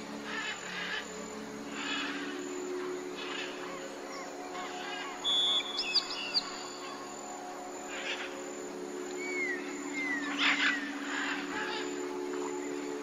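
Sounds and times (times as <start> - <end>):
low drone: 0.0 - 13.0
bird whistle: 5.2 - 6.6.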